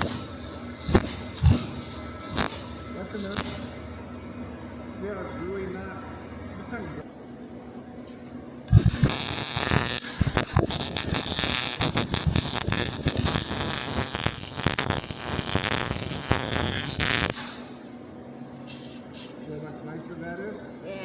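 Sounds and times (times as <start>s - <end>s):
welding arc crackling: 0.0s - 3.9s, 8.7s - 17.8s.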